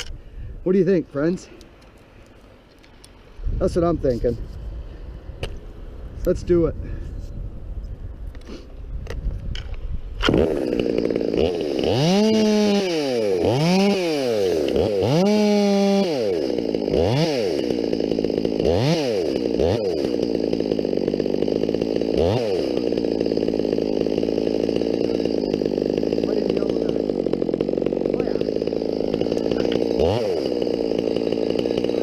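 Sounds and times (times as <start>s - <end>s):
chainsaw starting and revving: 10.1s - 32.0s.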